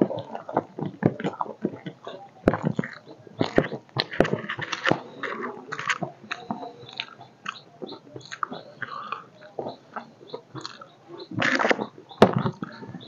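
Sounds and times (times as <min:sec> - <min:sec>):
person chewing food: 0:00.0 - 0:12.8.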